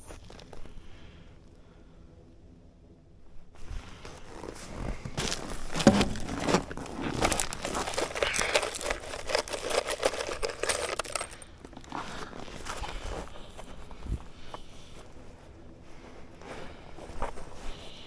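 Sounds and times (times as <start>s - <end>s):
sheet material crinkling: 4.2s - 13.1s.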